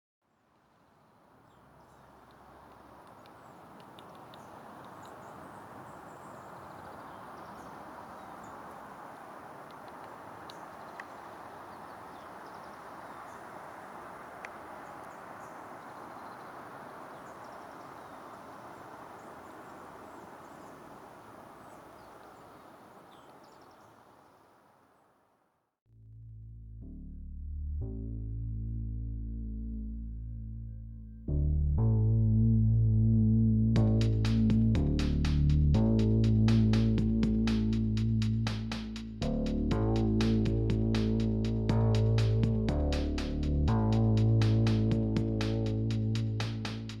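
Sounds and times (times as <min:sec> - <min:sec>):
faint high bird chirps: 0:01.0 - 0:24.6
rushing outdoor background noise: 0:01.1 - 0:24.1.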